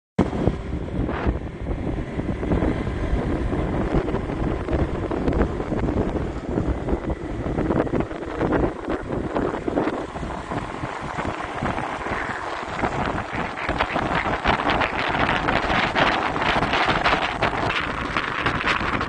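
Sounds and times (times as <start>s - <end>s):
motorbike running: 0.2s - 19.0s
wind buffeting microphone: 0.2s - 19.0s.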